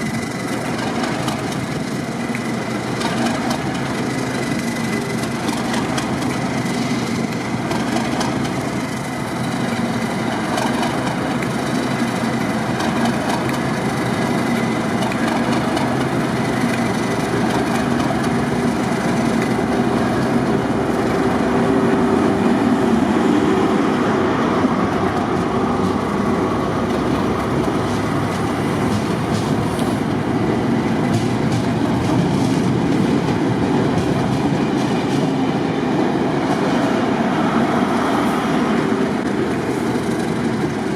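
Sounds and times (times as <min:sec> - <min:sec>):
rail joints clicking: 0:00.0 - 0:40.9
train wheels rumbling on track: 0:00.0 - 0:40.9.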